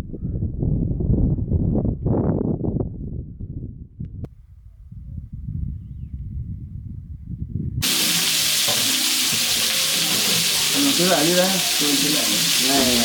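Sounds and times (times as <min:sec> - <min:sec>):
loud sizzling hiss: 0:07.8 - 0:13.0
voices: 0:08.9 - 0:13.0.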